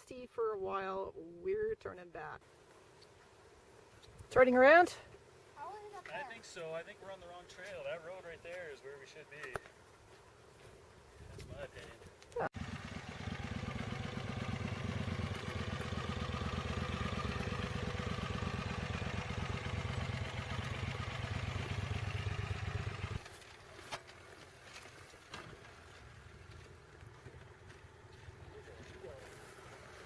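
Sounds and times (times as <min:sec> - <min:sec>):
motorcycle engine idling: 0:12.5 - 0:23.3.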